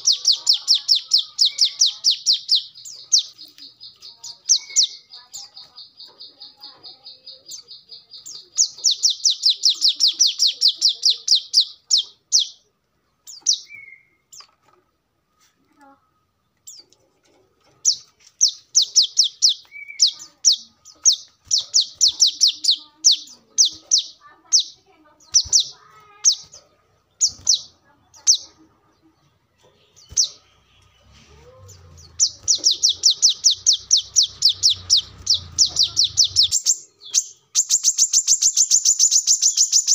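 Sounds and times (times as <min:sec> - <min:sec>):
bird calling in rapid trills: 0:00.0 - 0:12.6, 0:17.9 - 0:26.6, 0:31.7 - 0:39.9.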